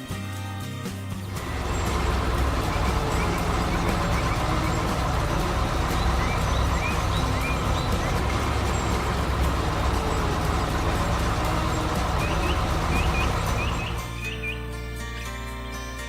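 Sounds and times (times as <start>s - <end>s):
vehicle engine rumbling: 1.2s - 14.6s
bird chirps: 1.3s - 14.7s.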